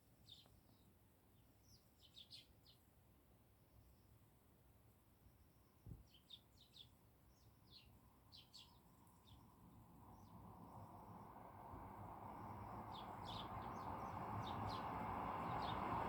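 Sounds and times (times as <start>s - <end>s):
sparrows chirping: 1.6s - 2.8s, 6.1s - 9.5s, 12.9s - 15.9s.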